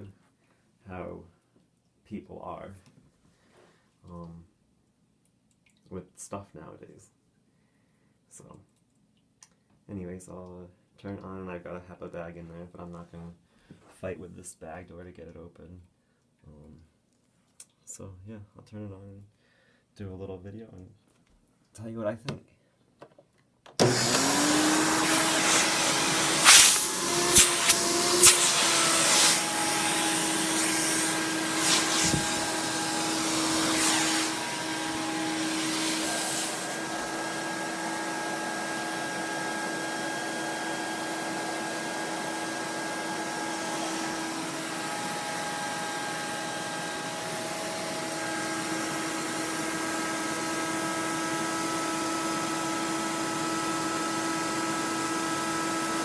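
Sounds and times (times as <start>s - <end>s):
vacuum cleaner motor whine: 23.8s - 56.0s.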